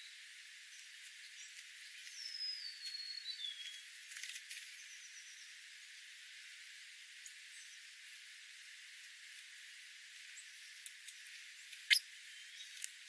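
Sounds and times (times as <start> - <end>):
steady hiss: 0.0 - 13.0
faint high chirps: 11.7 - 12.9.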